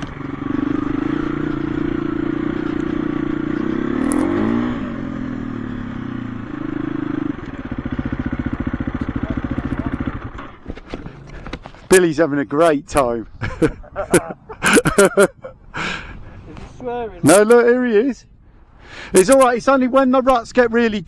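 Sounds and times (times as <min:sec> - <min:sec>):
dirt bike engine running: 0:00.0 - 0:11.9.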